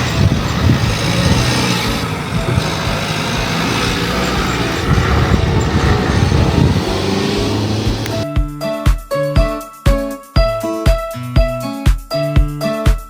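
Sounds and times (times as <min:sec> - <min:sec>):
road and body noise: 0:00.0 - 0:08.2
vehicle engine running: 0:00.0 - 0:08.2.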